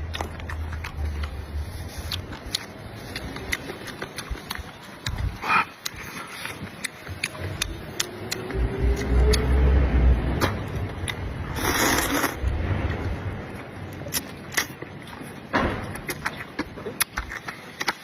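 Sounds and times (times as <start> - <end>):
wet chewing mouth clicks: 0.0 - 9.5, 16.0 - 18.0
low rumble: 7.5 - 14.0.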